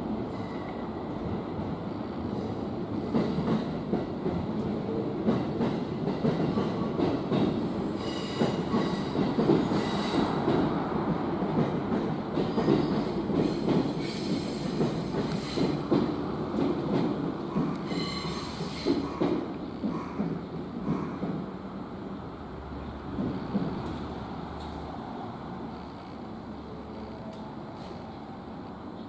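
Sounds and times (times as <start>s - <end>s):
train wheels rumbling on rail: 0.0s - 29.0s
faint high wheel squeals: 17.8s - 19.0s.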